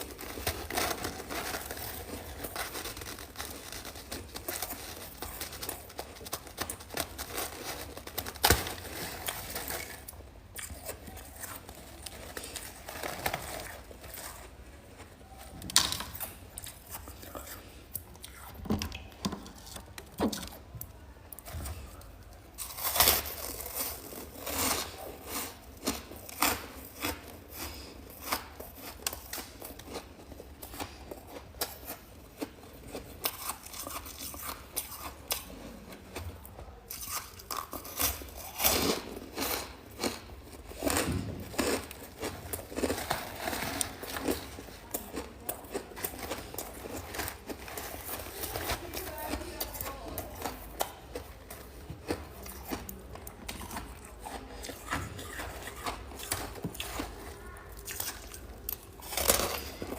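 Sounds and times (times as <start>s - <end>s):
frost chunks being chewed: 0.0s - 59.9s.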